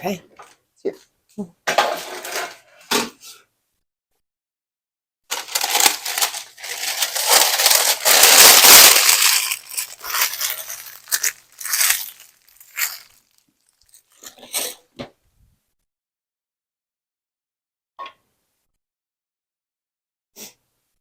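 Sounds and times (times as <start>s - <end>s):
packaging crinkling and tearing: 5.3s - 14.4s.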